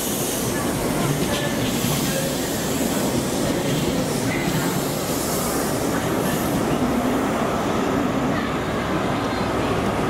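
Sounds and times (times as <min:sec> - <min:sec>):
train wheels rumbling on track: 0:00.0 - 0:10.0.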